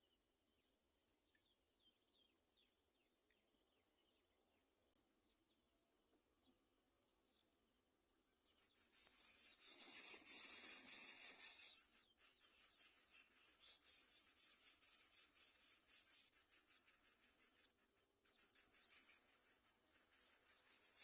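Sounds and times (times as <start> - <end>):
insects trilling: 8.6 - 21.0.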